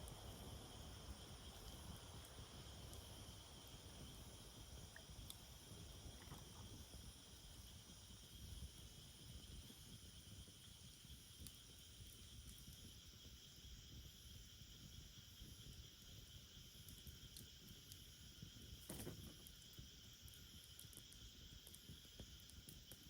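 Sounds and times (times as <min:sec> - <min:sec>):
insects trilling: 0:00.0 - 0:23.0
faint ticks: 0:01.6 - 0:03.4, 0:04.8 - 0:07.0, 0:10.6 - 0:13.0, 0:16.8 - 0:23.0.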